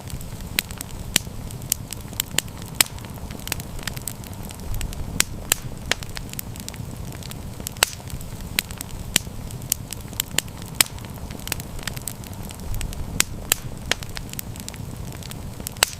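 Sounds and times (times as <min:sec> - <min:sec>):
campfire crackling and popping: 0:00.0 - 0:15.9
low rumble of flames: 0:00.0 - 0:15.9.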